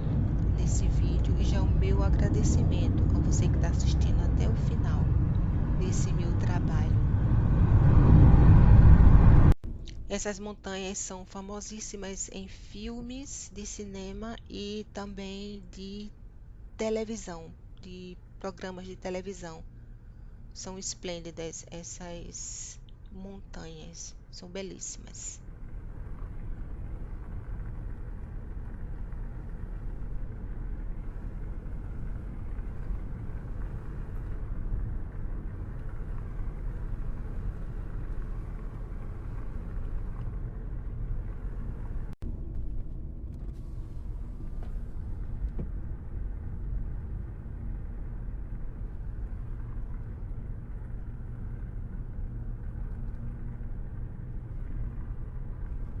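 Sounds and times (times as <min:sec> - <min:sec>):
car road and engine rumble: 0:00.0 - 0:10.3, 0:25.3 - 0:56.0.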